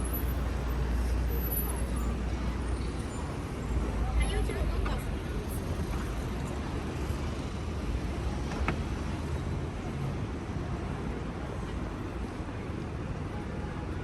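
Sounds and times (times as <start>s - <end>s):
traffic rumble: 0.0s - 13.5s
street noise: 0.0s - 14.0s.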